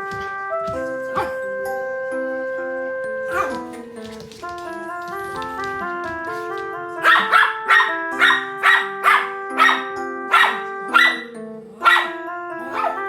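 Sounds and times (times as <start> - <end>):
light background music: 0.0 - 13.0
small dog barking: 1.1 - 1.4, 3.3 - 3.8, 7.0 - 13.0.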